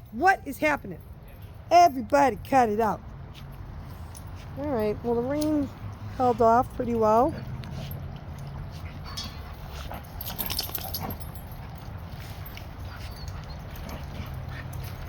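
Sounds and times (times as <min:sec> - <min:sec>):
dogs scuffling: 0:03.3 - 0:15.0
dogs whimpering and yipping: 0:07.2 - 0:15.0.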